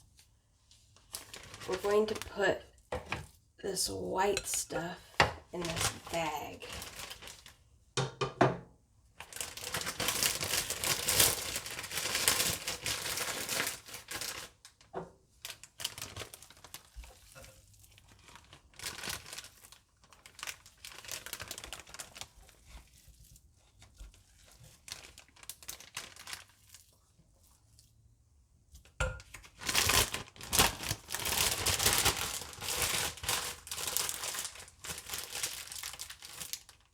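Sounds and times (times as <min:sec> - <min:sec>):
plastic bag crinkling: 0:01.0 - 0:02.7, 0:04.6 - 0:07.7, 0:09.2 - 0:22.8, 0:24.2 - 0:26.9, 0:29.4 - 0:36.9.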